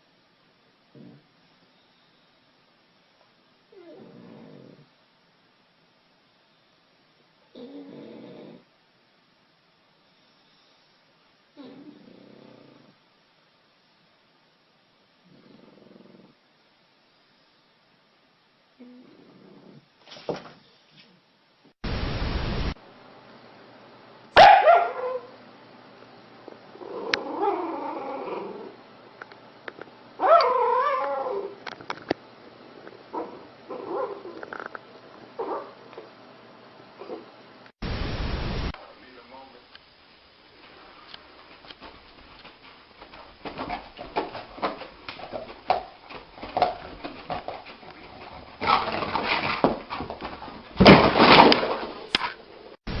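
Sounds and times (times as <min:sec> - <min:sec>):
dog barking: 0:24.4 - 0:25.4, 0:30.2 - 0:31.4, 0:33.2 - 0:34.3, 0:35.4 - 0:35.8
dog howling call: 0:24.4 - 0:25.4, 0:30.2 - 0:31.6.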